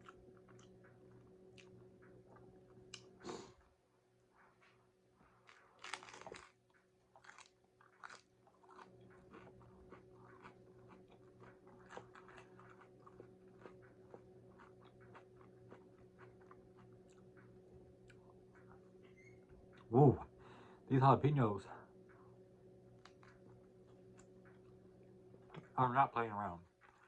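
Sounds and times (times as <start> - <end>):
chewing with crackling clicks: 0.0 - 3.2, 4.2 - 20.7, 21.8 - 27.0
biting into crunchy taco: 5.3 - 18.9, 22.9 - 25.7.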